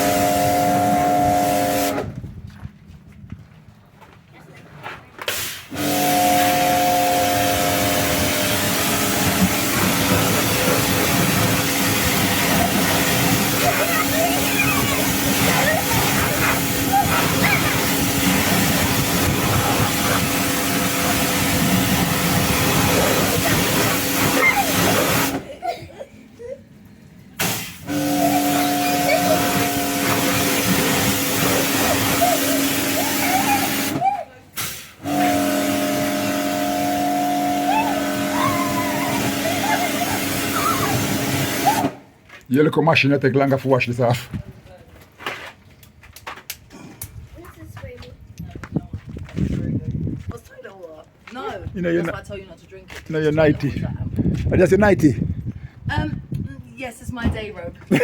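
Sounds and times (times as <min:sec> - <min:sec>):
pressure washer motor hum: 0:00.0 - 0:02.1, 0:05.3 - 0:25.5, 0:27.4 - 0:34.0, 0:34.6 - 0:42.0
water jet hissing: 0:05.3 - 0:25.5, 0:27.4 - 0:34.0, 0:34.6 - 0:42.0.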